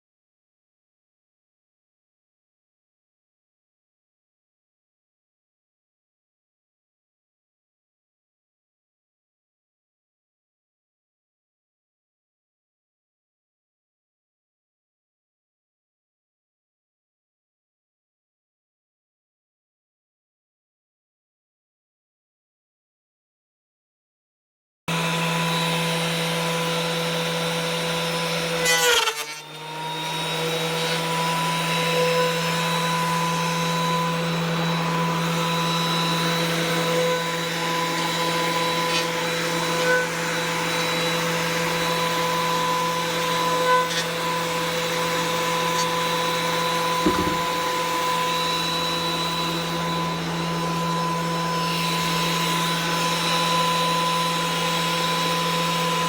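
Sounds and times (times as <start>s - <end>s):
electric motor whining: 24.9s - 56.0s
sharp noise of motor bogging: 24.9s - 56.0s.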